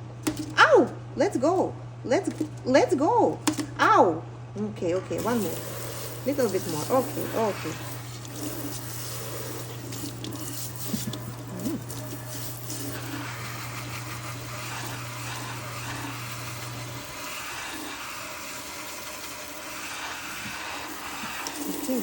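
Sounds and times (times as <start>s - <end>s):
low steady hum: 0.0s - 17.3s.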